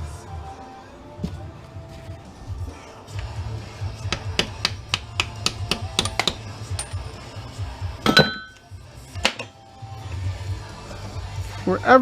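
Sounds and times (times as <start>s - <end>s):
hammer tapping on metal: 4.1s - 6.9s
ringing metallic clang: 8.1s - 8.7s.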